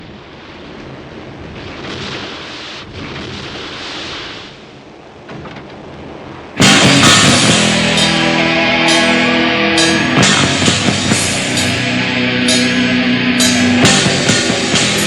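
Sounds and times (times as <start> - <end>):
low rumbling noise: 0.0 - 15.0
live metal band: 6.6 - 15.0.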